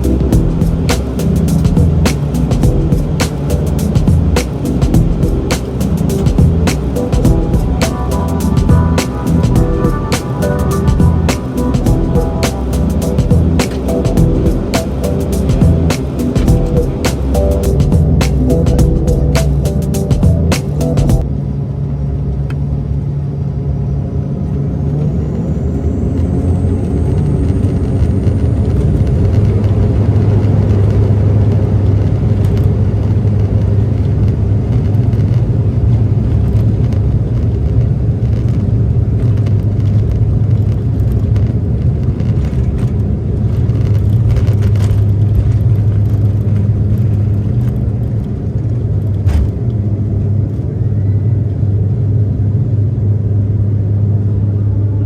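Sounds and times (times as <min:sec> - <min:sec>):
propeller drone: 0:00.0 - 0:33.3
high engine whine: 0:00.0 - 0:55.0.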